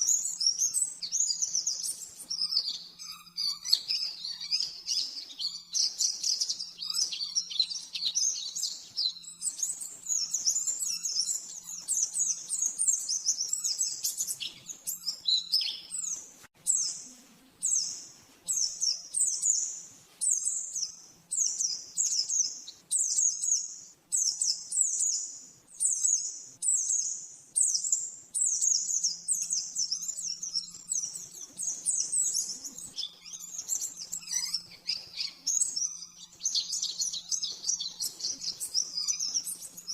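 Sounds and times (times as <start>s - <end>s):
bird chattering song: 0.0s - 17.0s, 25.8s - 39.9s.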